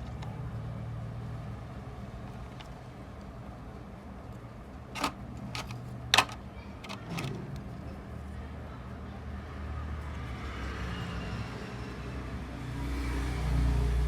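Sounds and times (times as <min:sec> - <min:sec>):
sharp clicks and taps: 0:05.0 - 0:07.3.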